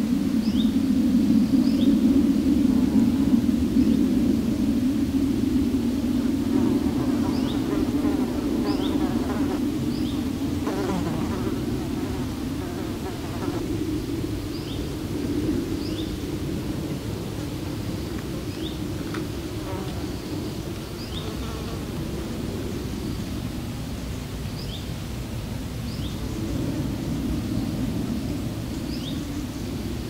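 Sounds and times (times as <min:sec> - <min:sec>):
flying insect buzzing: 0:06.4 - 0:13.9, 0:18.6 - 0:22.3.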